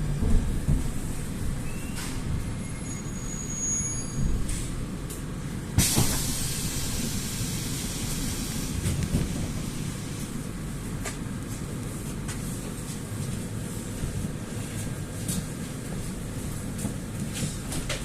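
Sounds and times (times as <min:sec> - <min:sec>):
metro train rumble: 0:00.0 - 0:18.0
loud hiss: 0:05.8 - 0:10.2.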